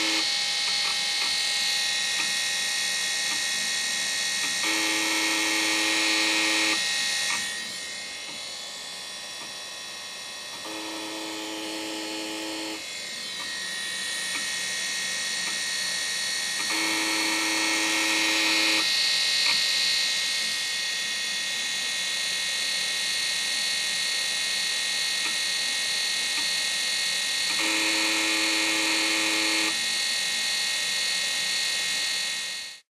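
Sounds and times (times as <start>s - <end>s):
hard drive low buzz: 0.0s - 19.0s
hard drive high whine: 0.0s - 32.8s.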